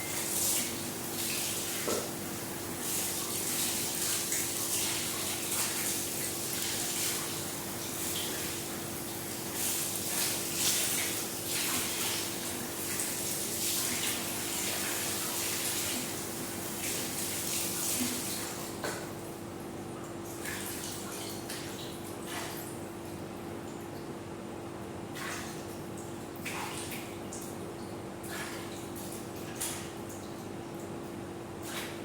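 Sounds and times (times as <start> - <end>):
tap water running and splashing: 0.0 - 19.2.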